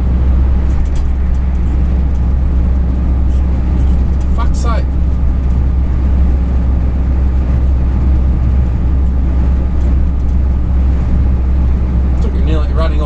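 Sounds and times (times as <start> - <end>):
road noise: 0.0 - 13.0
truck engine droning: 0.0 - 13.0.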